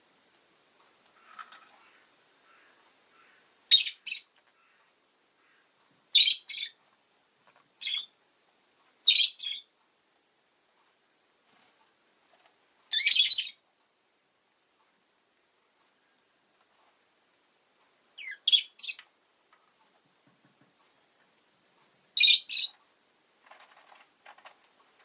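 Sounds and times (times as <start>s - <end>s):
lovebird chirping: 1.2s - 4.8s, 5.4s - 6.8s, 7.8s - 8.2s, 9.0s - 9.7s, 12.9s - 13.6s, 18.2s - 19.1s, 22.2s - 22.8s.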